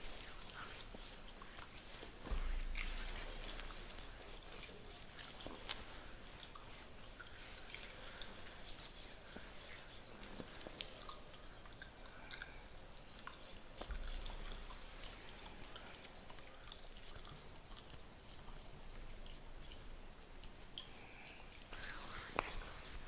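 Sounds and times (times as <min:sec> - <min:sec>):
fingers scratching a beard: 0:21.8 - 0:23.0.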